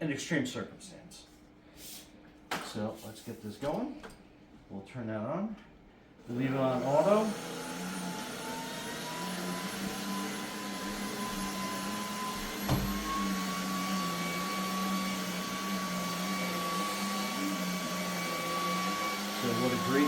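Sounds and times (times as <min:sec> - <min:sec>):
vacuum cleaner motor whine: 0:06.3 - 0:20.0.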